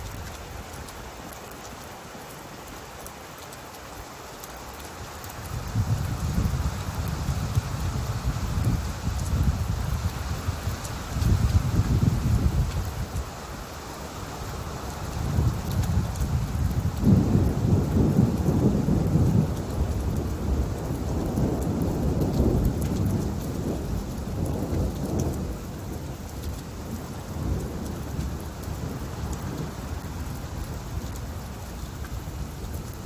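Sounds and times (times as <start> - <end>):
steady rain falling: 0.0 - 33.0
thunder rumbling: 5.4 - 13.2, 15.2 - 31.6.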